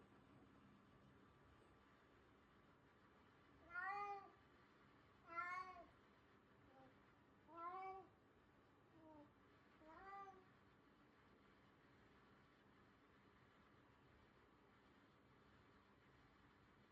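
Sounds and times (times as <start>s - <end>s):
cat meowing softly: 3.6s - 4.4s, 5.2s - 5.9s, 6.7s - 8.2s, 9.0s - 10.6s.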